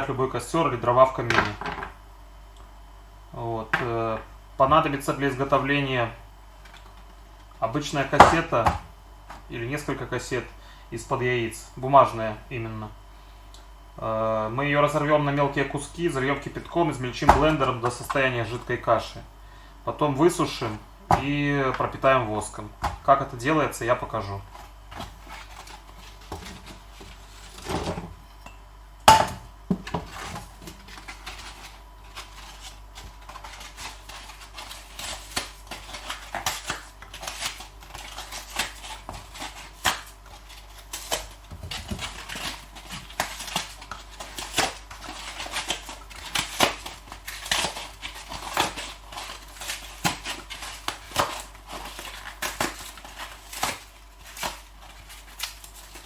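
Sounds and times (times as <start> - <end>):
paper egg cartons tearing: 30.1 - 56.0.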